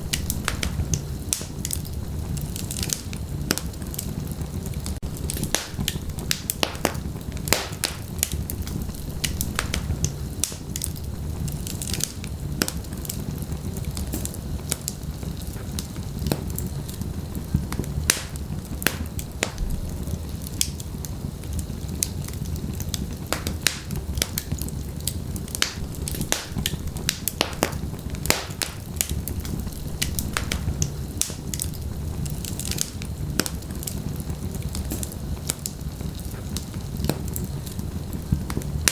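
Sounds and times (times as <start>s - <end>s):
fire crackling and popping: 0.0s - 38.9s
rumble of flames: 0.0s - 38.9s.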